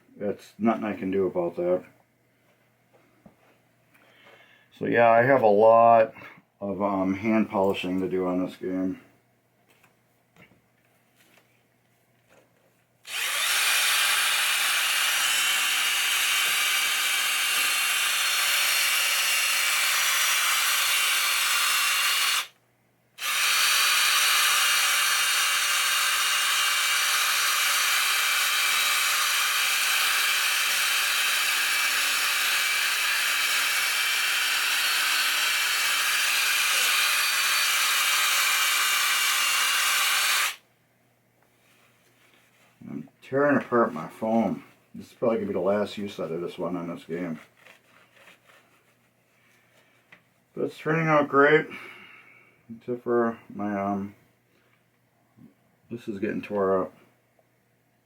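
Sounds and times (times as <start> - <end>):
electric polisher motor whine: 13.1 - 19.1.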